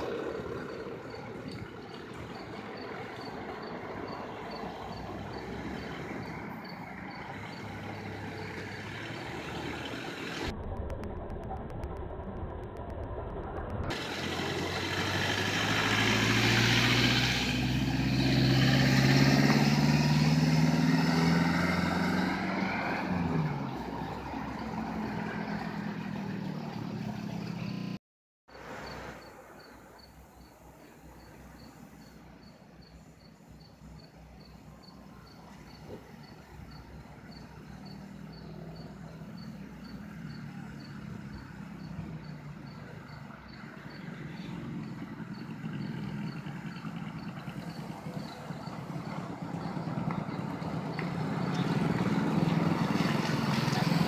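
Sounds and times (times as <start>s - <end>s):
vehicle accelerating past: 0.0s - 11.0s, 11.6s - 28.0s, 35.4s - 54.0s.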